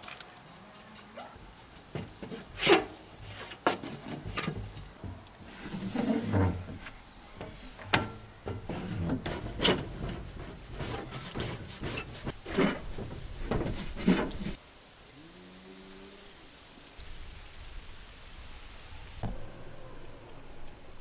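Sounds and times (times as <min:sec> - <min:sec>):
wood knocking on wood: 0:01.4 - 0:14.6
wood rubbing and scraping: 0:01.4 - 0:14.6.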